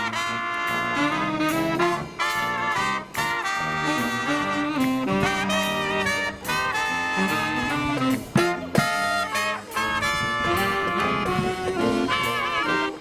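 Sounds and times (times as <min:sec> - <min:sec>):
brass marching band playing: 0:00.0 - 0:13.0.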